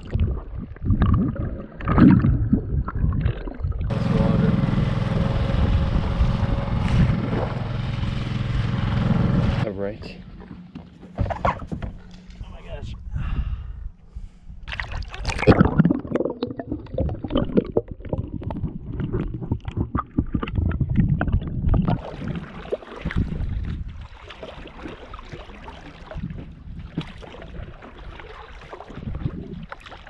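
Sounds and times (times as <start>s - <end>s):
water splashing against boat hull: 14.7s - 30.0s.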